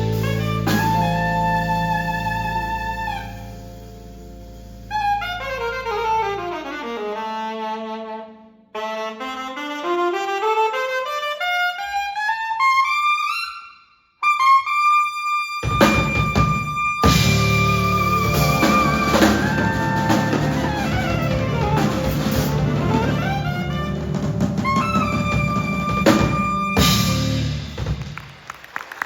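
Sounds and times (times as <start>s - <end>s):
band with drums playing: 0.0s - 3.6s, 15.6s - 28.6s
solo saxophone improvising: 0.0s - 4.2s, 4.8s - 13.5s, 14.2s - 27.8s.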